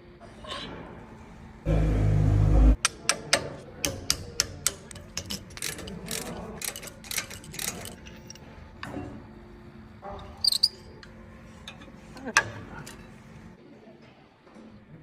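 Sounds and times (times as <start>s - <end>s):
power tool humming: 1.7s - 2.8s
hand tools clinking on metal: 4.6s - 8.4s.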